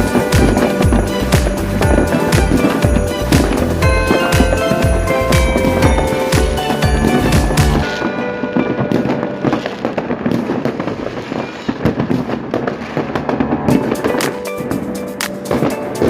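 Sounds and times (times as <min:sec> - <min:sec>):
music playing: 0:00.0 - 0:10.3, 0:12.8 - 0:16.0
fireworks crackling and banging: 0:00.0 - 0:16.0.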